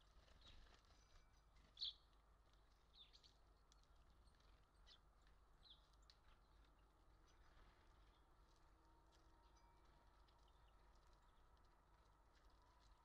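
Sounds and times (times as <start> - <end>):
low steady hum: 0.0 - 13.0
faint small bird chirps: 0.3 - 2.1.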